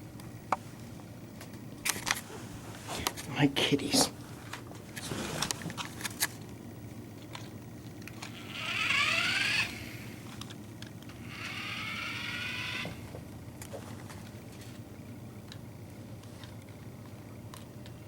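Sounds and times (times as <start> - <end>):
toy car motor whining: 8.2 - 10.2, 11.1 - 13.2.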